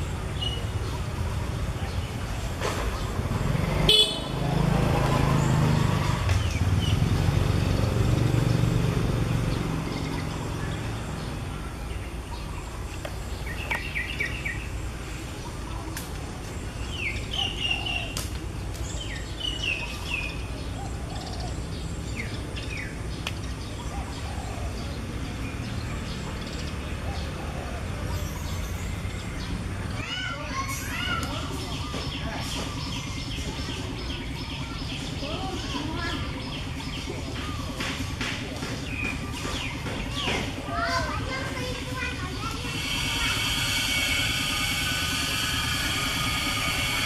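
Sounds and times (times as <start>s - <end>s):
small birds chirping: 0.0s - 47.0s
low droning rumble: 41.3s - 47.0s.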